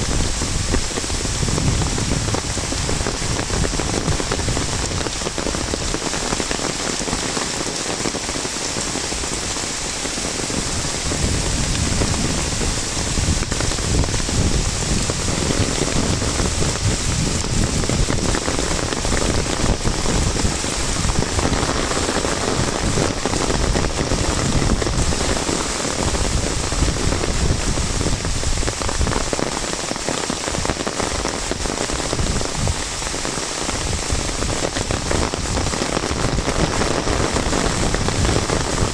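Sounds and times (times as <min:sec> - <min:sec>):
hiss of falling rain: 0:00.0 - 0:38.9
rain drumming on an umbrella: 0:00.0 - 0:38.9.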